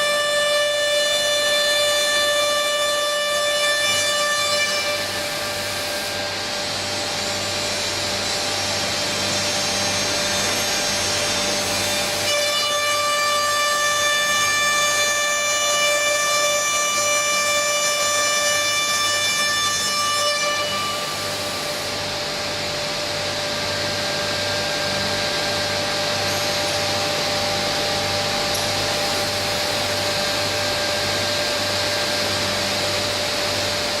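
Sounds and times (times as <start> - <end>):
high machine whine: 4.6 - 12.5, 20.6 - 34.0.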